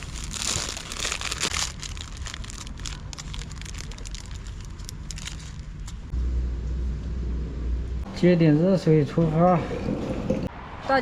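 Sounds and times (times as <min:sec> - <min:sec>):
plastic wrapper crinkling: 0:00.0 - 0:06.1.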